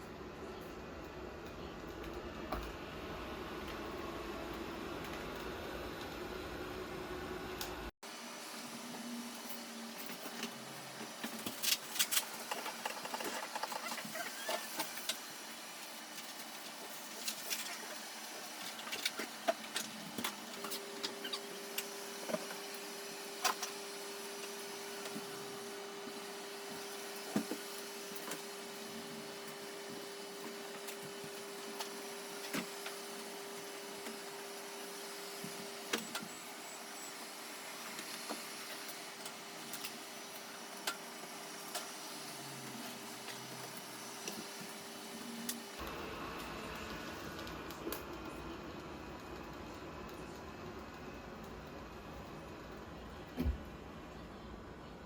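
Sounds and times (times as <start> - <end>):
robot vacuum cleaner running: 8.1 - 49.7.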